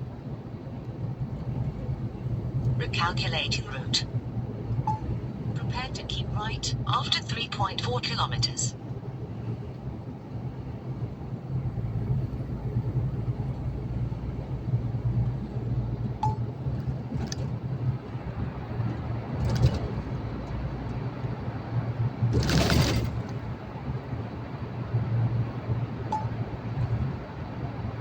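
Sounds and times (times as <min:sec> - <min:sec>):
truck engine and road drone: 0:00.0 - 0:28.0
clinks and rattles: 0:22.3 - 0:23.5.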